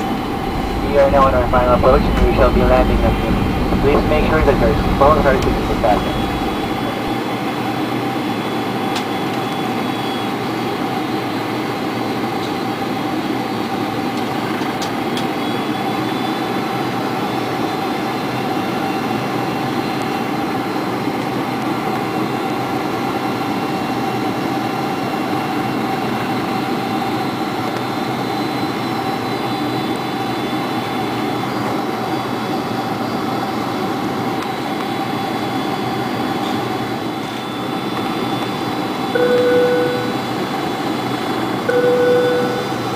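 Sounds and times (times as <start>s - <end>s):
steady tone: 0.0s - 7.2s, 39.1s - 40.4s, 41.6s - 42.9s
aircraft cabin engine and airflow rush: 0.0s - 42.9s.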